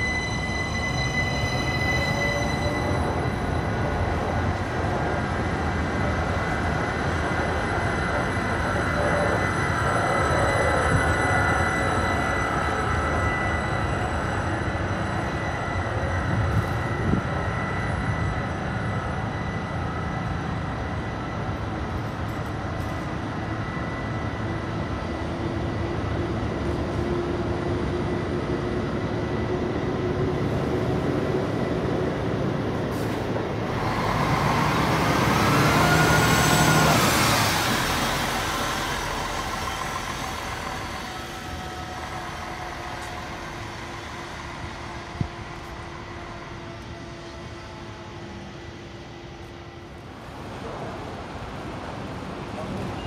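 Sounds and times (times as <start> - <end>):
train passing close by: 0.0 - 53.0.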